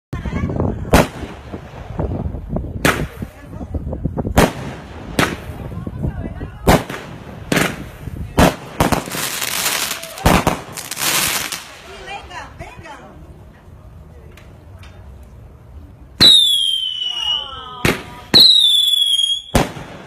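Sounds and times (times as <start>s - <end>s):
firework bangs: 0.8s - 3.5s, 4.2s - 12.4s, 16.2s - 20.0s
firework crackling: 0.8s - 13.3s, 16.2s - 20.0s.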